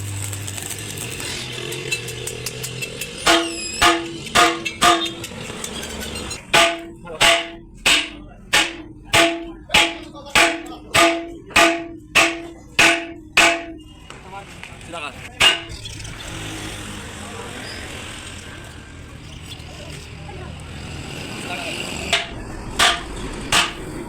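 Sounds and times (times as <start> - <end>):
hammer striking metal: 1.8 - 14.0, 15.4 - 15.8, 22.1 - 24.0.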